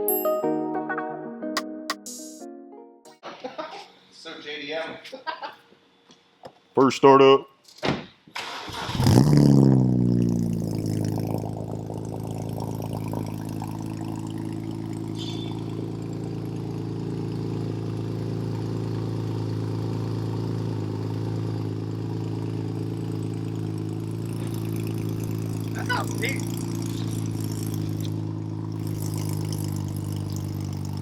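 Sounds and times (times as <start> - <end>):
car engine starting and idling: 8.3 - 31.0.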